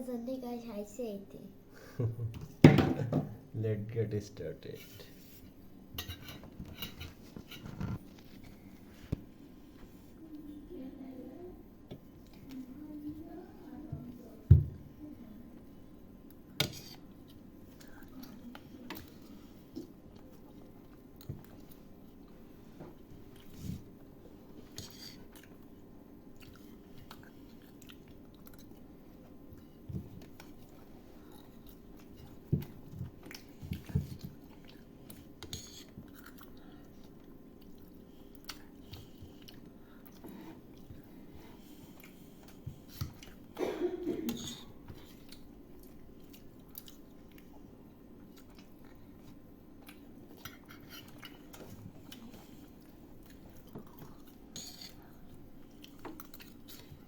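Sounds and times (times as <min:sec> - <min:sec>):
people chewing noodles: 0:16.3 - 0:43.6, 0:44.3 - 0:57.0.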